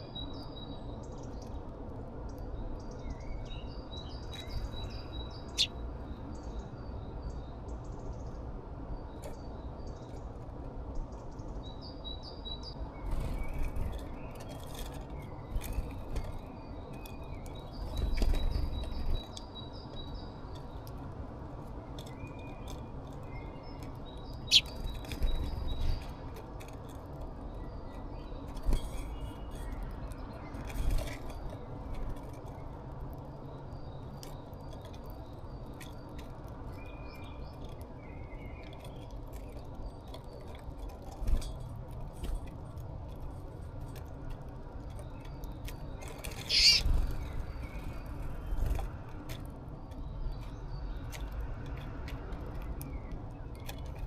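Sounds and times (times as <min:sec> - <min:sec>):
small birds chirping: 0:00.0 - 0:10.3, 0:10.9 - 0:26.3, 0:44.7 - 0:48.9
low outdoor hum: 0:00.0 - 0:54.0.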